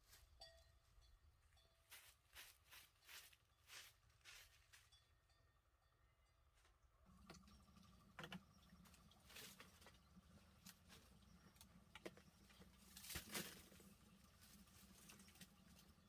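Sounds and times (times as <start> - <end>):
low steady hum: 0.0 - 16.0
faint clicks and rustles: 6.6 - 16.0.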